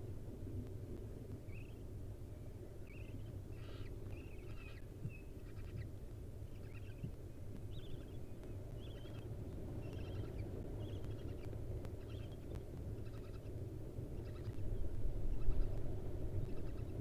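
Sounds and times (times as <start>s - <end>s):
steady low rumble: 0.0s - 17.0s
faint short bird calls: 2.9s - 5.9s.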